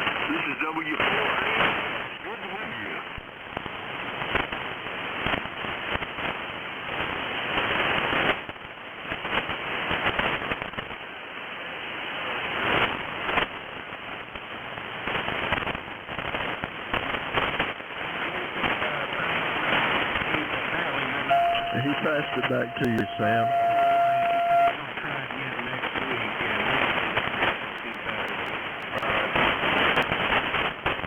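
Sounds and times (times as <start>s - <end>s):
radio static hiss: 0.0s - 3.2s, 16.3s - 31.0s
static crashes from lightning: 12.3s - 31.0s.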